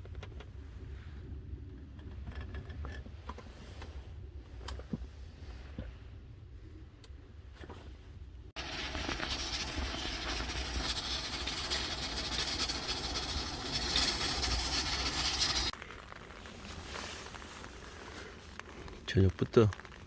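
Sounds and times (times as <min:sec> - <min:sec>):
rain hissing and pattering: 0:08.6 - 0:20.0.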